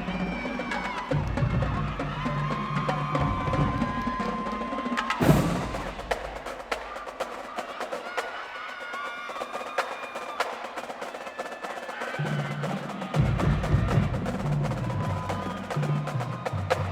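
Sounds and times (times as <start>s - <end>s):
marching band playing: 0.0s - 16.9s
drumline clicks and taps: 0.4s - 16.9s.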